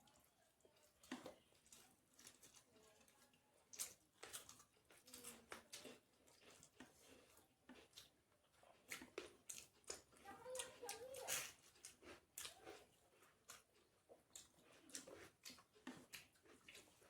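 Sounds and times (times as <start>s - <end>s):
wet mouth smacks and chewing: 3.7s - 17.0s.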